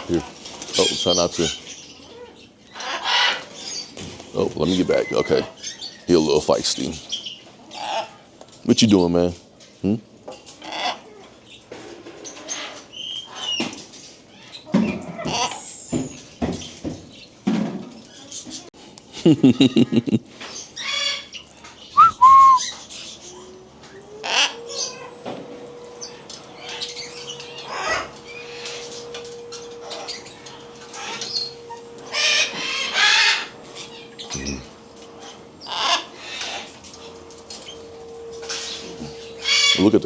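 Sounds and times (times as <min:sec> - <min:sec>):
birds squawking and chirping: 0:00.0 - 0:18.7, 0:19.5 - 0:40.0
brief whistle: 0:22.0 - 0:22.6.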